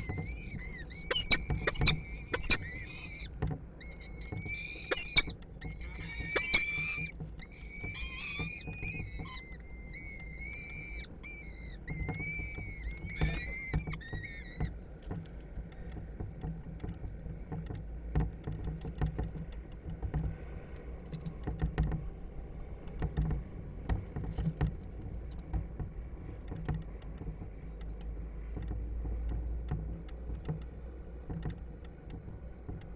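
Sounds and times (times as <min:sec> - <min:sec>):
falcons calling: 0:00.0 - 0:03.3, 0:03.9 - 0:07.1.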